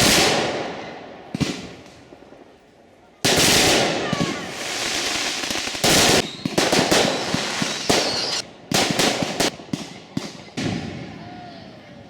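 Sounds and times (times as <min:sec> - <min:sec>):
firework crackling pops: 0:03.2 - 0:11.0
firework bangs: 0:03.2 - 0:11.1.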